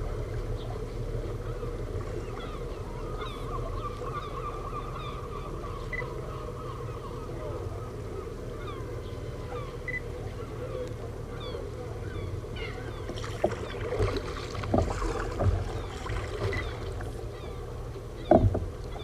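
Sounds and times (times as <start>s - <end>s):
water sloshing around kayak: 0.0s - 19.0s
wind and swell rumble: 0.0s - 19.0s
knocks and splashes against hull: 13.0s - 17.2s, 18.2s - 19.0s.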